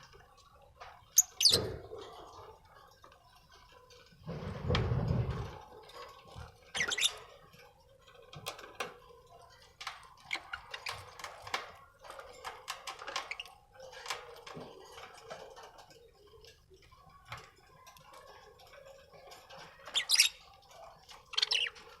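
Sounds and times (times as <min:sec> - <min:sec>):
budgerigars chirping and chattering: 0:01.0 - 0:02.6, 0:06.6 - 0:07.5, 0:09.4 - 0:11.6, 0:15.0 - 0:22.0.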